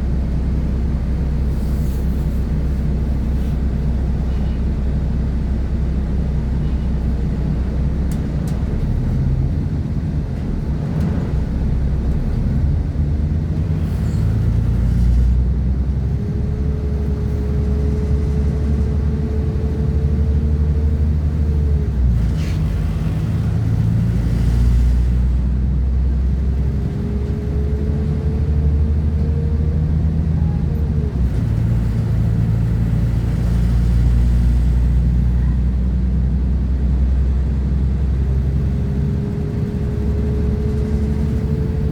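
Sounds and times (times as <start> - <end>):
train diesel engine rumble: 0.0 - 41.9
wheels on the track: 38.0 - 41.9.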